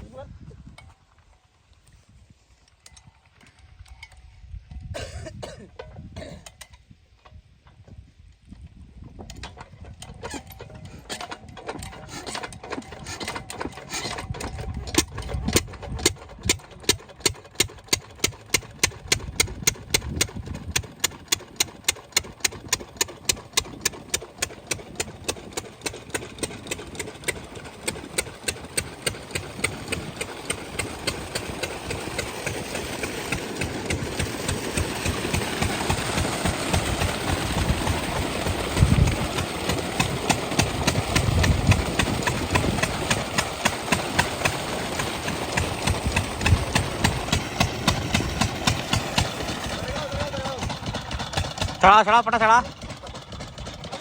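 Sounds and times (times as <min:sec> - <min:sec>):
diesel engine running: 0:10.4 - 0:54.0.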